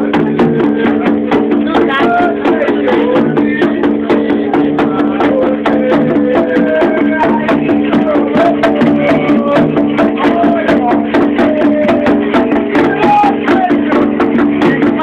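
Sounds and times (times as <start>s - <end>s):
fast percussion beat: 0.0s - 15.0s
voices singing a chant: 0.0s - 15.0s.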